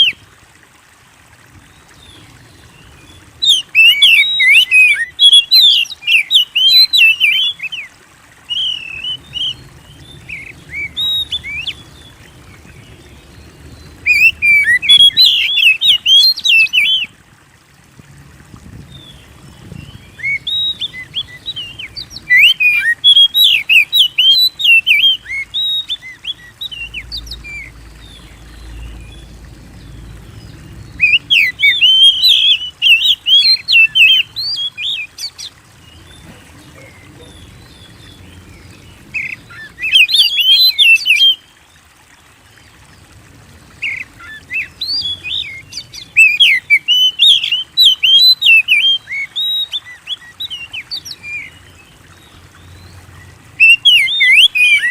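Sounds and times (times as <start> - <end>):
bird singing whistles and chirps: 3.4 - 7.8, 8.5 - 11.8, 14.0 - 17.1, 19.7 - 29.3, 30.8 - 35.4, 39.2 - 41.4, 43.8 - 51.6, 53.6 - 54.9.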